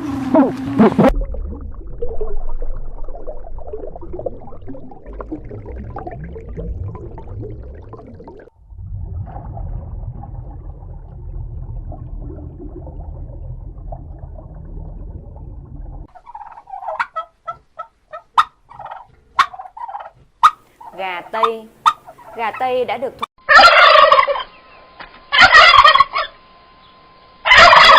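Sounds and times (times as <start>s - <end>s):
low rumbling noise: 0.0s - 16.2s
turkey gobbling: 16.1s - 24.6s, 25.3s - 26.4s, 27.4s - 27.9s.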